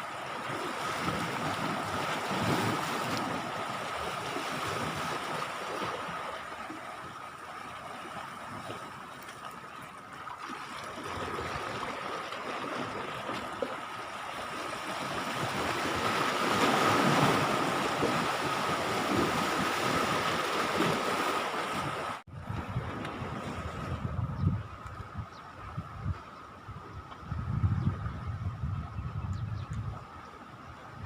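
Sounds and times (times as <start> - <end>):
sea waves washing on beach: 0.0 - 24.1
wind noise: 14.9 - 31.0.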